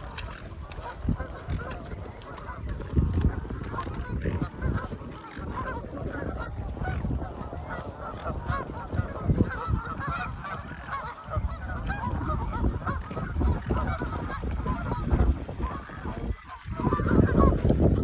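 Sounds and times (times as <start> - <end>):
swans calling: 0.0 - 18.0.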